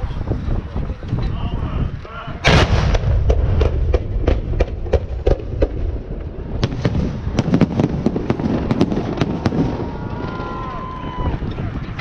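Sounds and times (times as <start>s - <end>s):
low rumble: 0.0s - 9.2s
fireworks bursting with sharp bangs: 2.4s - 11.0s.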